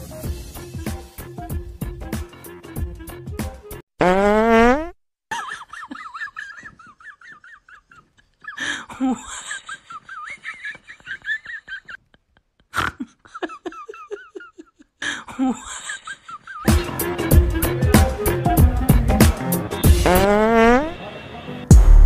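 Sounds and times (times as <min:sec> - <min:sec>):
buzzy fart sound: 0:04.0 - 0:05.0, 0:19.9 - 0:21.0
high-pitched giggling: 0:05.3 - 0:16.7.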